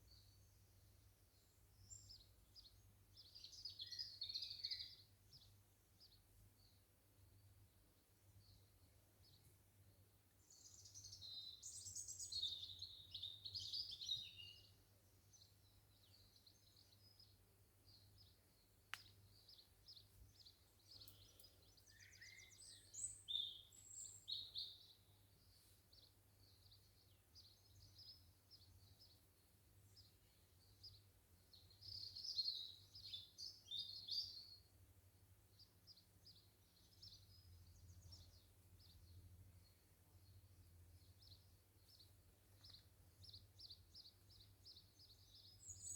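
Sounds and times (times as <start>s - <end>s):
birds chirping and warbling: 19.0s - 25.0s, 41.0s - 45.9s.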